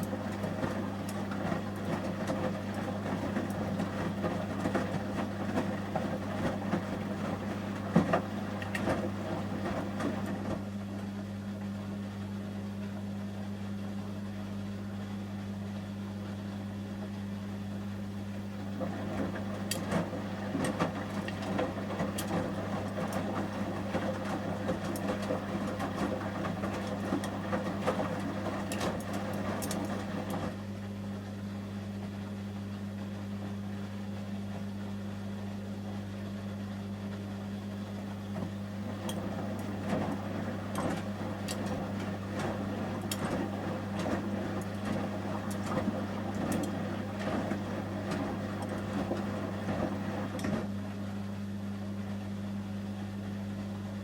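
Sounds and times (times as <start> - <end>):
washing machine drum turning: 18.8 - 30.6, 38.3 - 50.7.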